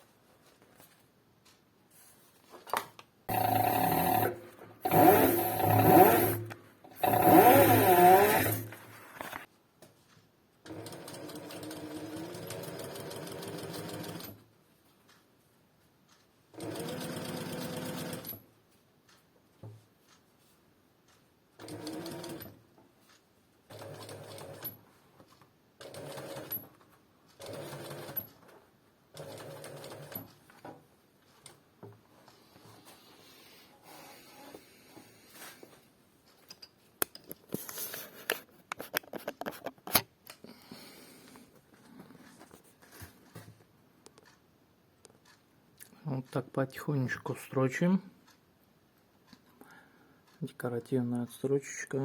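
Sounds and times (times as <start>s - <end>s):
industrial sewing machine stitching: 3.3s - 8.9s, 10.7s - 14.4s, 16.5s - 18.4s, 21.6s - 22.6s, 23.7s - 24.8s, 25.8s - 26.8s, 27.4s - 28.4s, 29.1s - 30.3s.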